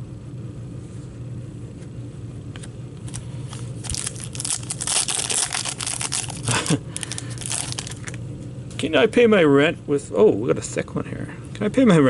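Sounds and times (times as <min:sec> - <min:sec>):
foil wrapper crinkling and tearing: 0:03.1 - 0:08.2.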